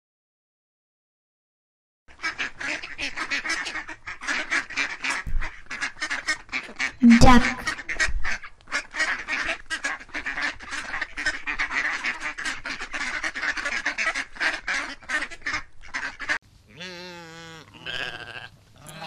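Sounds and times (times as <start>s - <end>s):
geese honking: 2.2s - 19.0s
sheep bleating: 16.7s - 19.0s.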